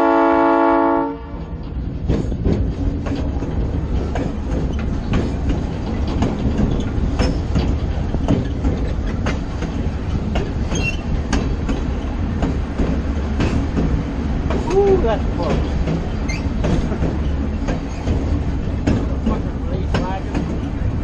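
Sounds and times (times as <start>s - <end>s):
train rumbling on track: 0.0s - 21.0s
wheels clicking over rail joints: 1.3s - 21.0s.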